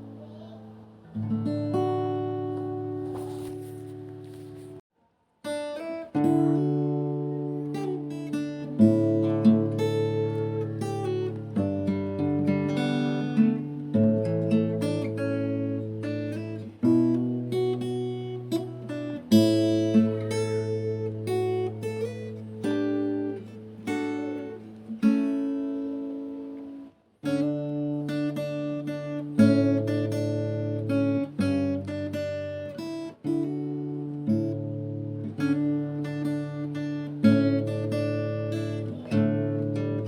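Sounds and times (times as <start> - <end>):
acoustic guitar chords: 0.0 - 4.8, 5.4 - 40.0.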